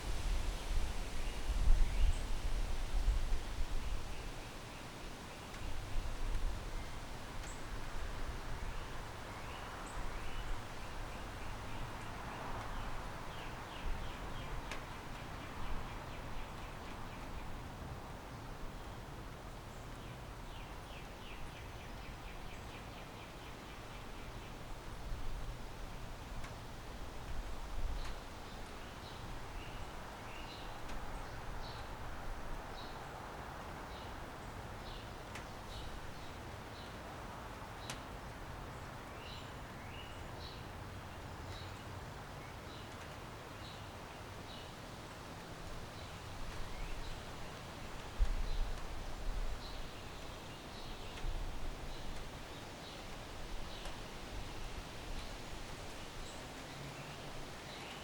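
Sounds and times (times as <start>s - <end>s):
wind buffeting microphone: 0.0s - 4.6s
distant city noise hiss: 0.0s - 58.0s.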